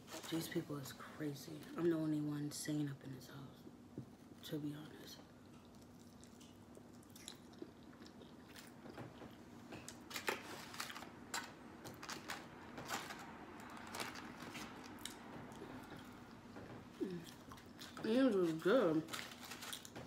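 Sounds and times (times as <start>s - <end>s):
person chewing food: 5.4s - 18.0s.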